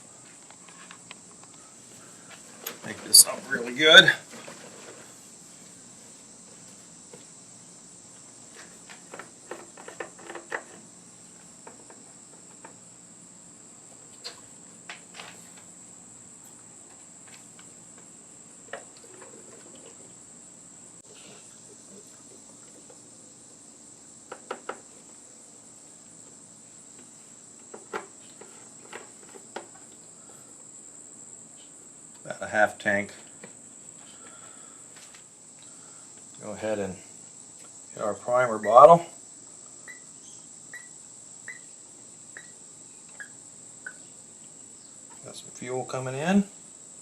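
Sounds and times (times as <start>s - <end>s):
crickets chirping: 0.0s - 47.0s.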